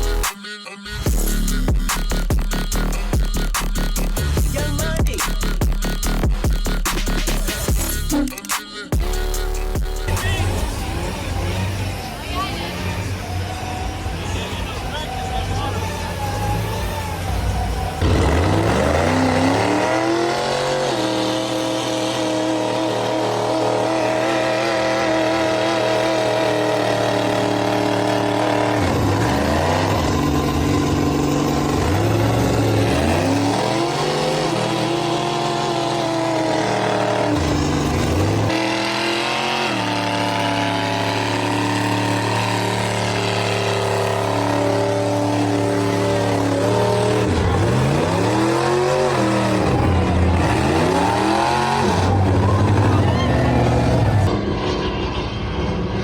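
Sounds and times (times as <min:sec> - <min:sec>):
truck engine revving: 0:00.0 - 0:56.0.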